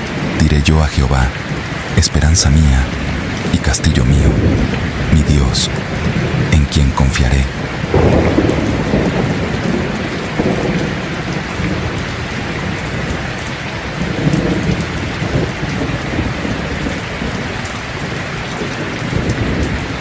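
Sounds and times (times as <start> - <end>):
heavy rain: 0.0 - 20.0
thunder rumbling: 0.0 - 20.0.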